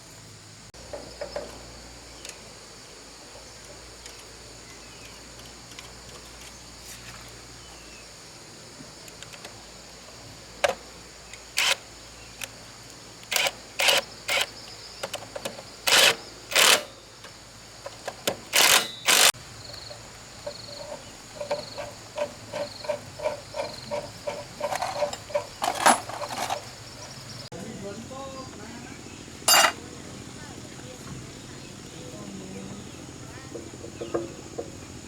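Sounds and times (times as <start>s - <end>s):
insects droning: 0.0s - 35.0s
scraping strokes: 20.5s - 26.8s.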